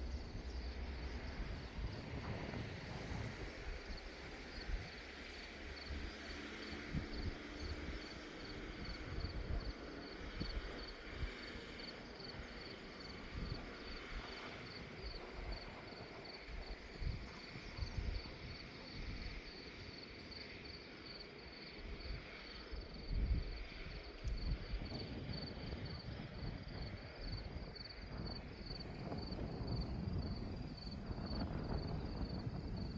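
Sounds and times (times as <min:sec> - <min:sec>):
insect chirping: 0:00.0 - 0:02.0, 0:15.0 - 0:32.9
wind gusting on microphone: 0:00.0 - 0:20.0, 0:21.7 - 0:32.9.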